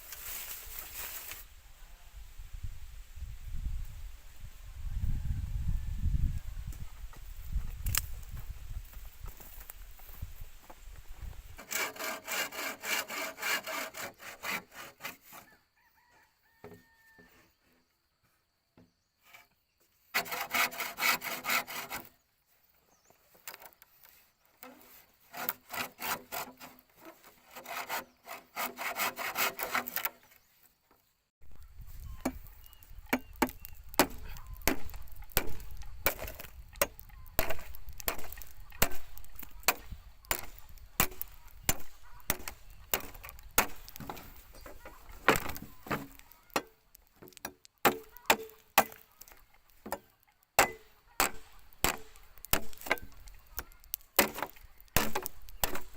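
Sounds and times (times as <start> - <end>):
hand saw cutting bamboo: 11.6 - 15.5, 20.1 - 22.2, 24.6 - 30.3, 33.1 - 46.7, 50.6 - 55.9.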